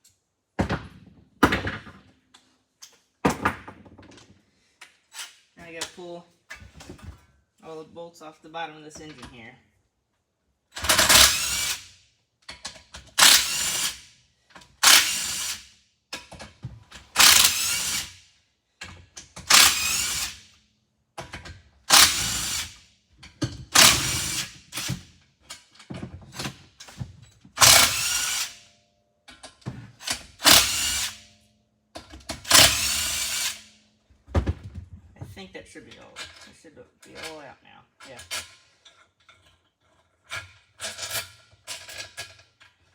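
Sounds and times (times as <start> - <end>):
power tool bursts: 10.9 - 11.8, 13.2 - 14.0, 14.8 - 15.6, 17.2 - 18.1, 19.5 - 20.4, 21.9 - 22.8, 23.8 - 24.9, 27.6 - 28.6, 30.4 - 31.2, 32.4 - 33.6.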